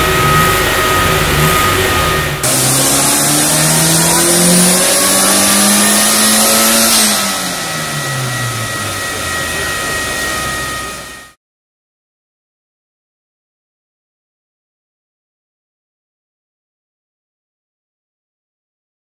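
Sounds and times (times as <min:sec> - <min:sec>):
car engine revving: 0:00.0 - 0:11.4.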